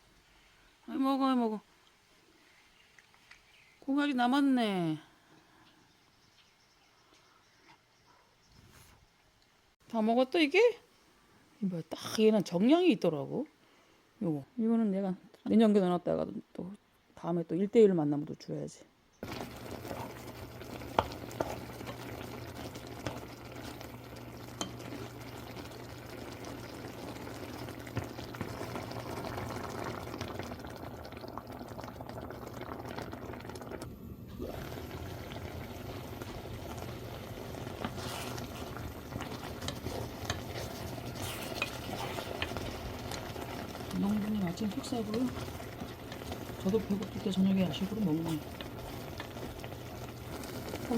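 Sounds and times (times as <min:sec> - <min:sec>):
liquid boiling bubbling: 0:19.2 - 0:50.9.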